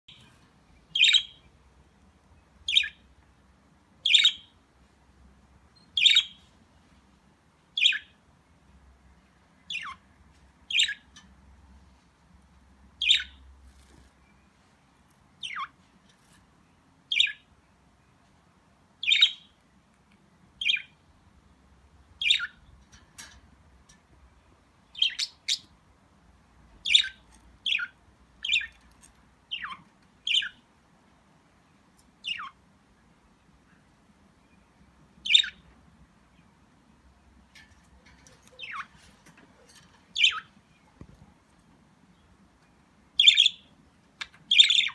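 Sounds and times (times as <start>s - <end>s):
budgerigars chirping: 1.0s - 1.4s, 4.0s - 4.5s, 6.0s - 6.4s, 15.4s - 15.7s, 17.1s - 17.4s, 19.0s - 19.5s, 22.2s - 22.6s, 25.0s - 25.7s, 26.8s - 28.8s, 29.5s - 30.6s, 32.2s - 32.6s, 35.2s - 35.6s, 40.2s - 40.5s, 43.2s - 44.9s.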